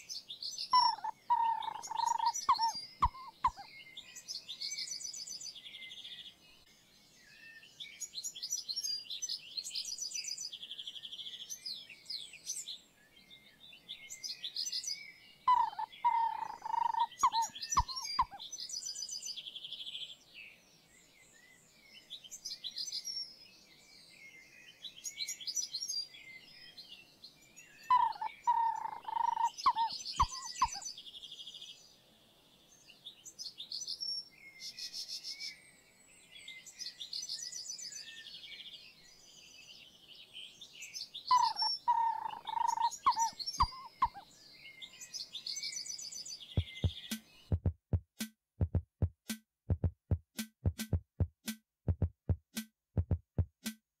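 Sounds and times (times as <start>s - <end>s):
birds chirping and trilling: 0.0s - 47.6s
loud low bird call with clicks: 0.8s - 3.7s, 15.5s - 18.4s, 27.9s - 30.8s, 41.3s - 44.2s.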